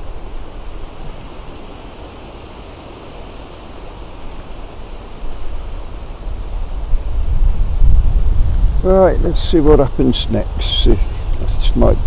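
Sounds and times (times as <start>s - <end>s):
wind buffeting microphone: 4.3s - 12.0s.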